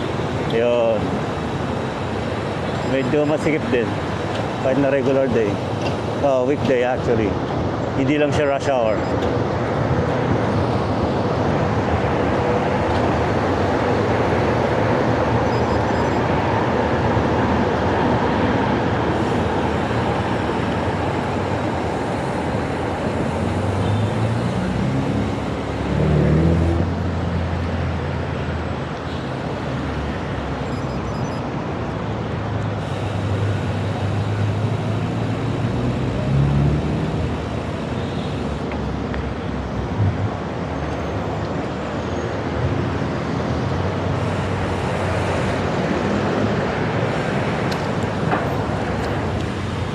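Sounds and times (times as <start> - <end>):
engine running low: 0.0 - 49.9
heavy road traffic: 0.0 - 49.9
vehicle engine pulling away: 23.2 - 27.7, 33.1 - 37.6.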